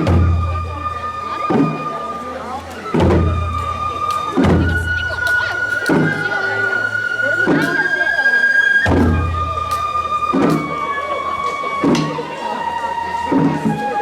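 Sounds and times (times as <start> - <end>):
flute holding long notes: 0.0 - 14.0
low ringing drum strokes: 0.0 - 14.0.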